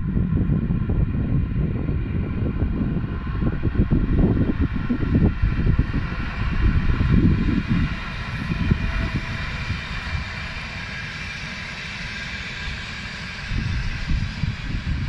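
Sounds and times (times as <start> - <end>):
locomotive whine: 0.0 - 15.0
train rumbling past: 0.0 - 15.0.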